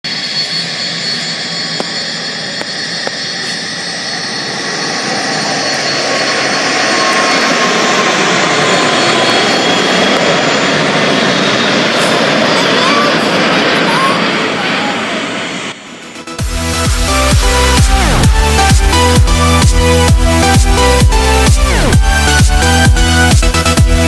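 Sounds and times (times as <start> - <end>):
jet engines rumbling at takeoff: 0.0 - 24.0
thin steady engine whine: 0.0 - 24.0.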